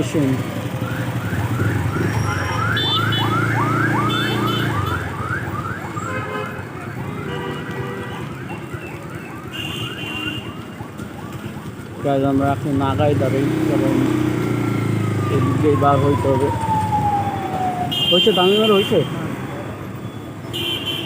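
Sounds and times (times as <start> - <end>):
electronic siren sweeping: 0.6 - 7.1, 13.3 - 20.4.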